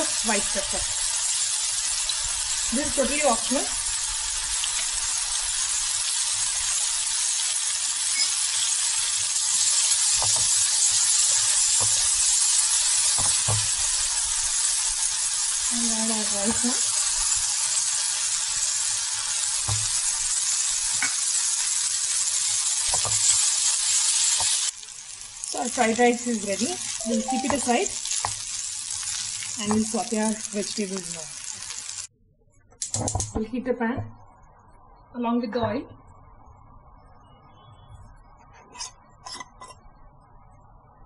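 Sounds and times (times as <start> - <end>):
vegetables sizzling in hot oil: 0.0 - 32.1
spatula knocking and scraping pan: 10.1 - 12.2, 13.1 - 13.8.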